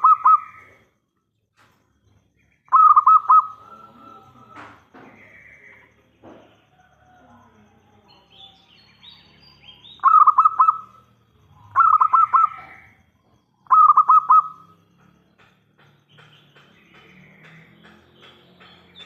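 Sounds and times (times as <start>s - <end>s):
dove cooing: 0.0s - 0.8s, 2.7s - 5.9s, 10.0s - 13.0s, 13.6s - 14.8s
high bird chirps: 0.0s - 6.4s, 8.1s - 19.0s.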